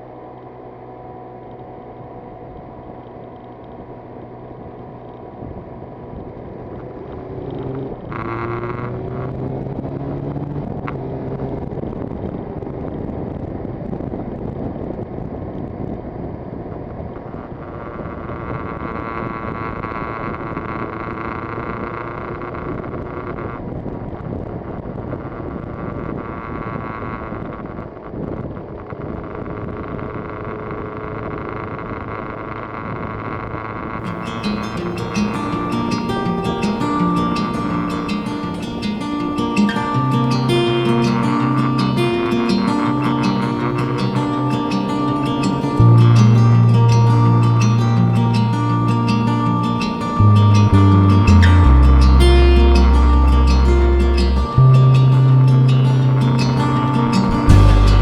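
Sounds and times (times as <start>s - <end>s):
wind rushing over microphone: 4.9s - 21.8s, 22.4s - 32.1s
two-stroke motorcycle engine revving: 6.1s - 11.7s.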